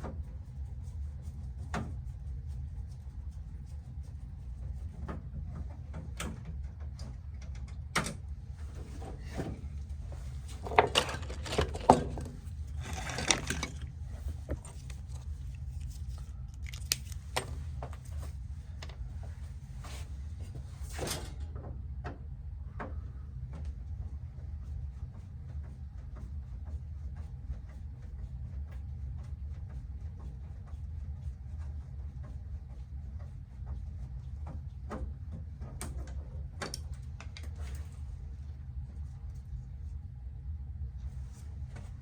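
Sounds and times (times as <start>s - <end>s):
steady low hum: 0.0s - 42.0s
tools and parts clicking and knocking: 10.6s - 18.1s.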